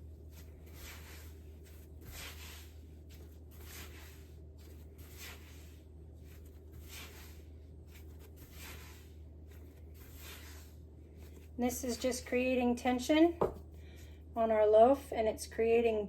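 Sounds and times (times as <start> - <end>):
dough dragged across surface: 0.0 - 12.6
steady low hum: 0.0 - 16.0.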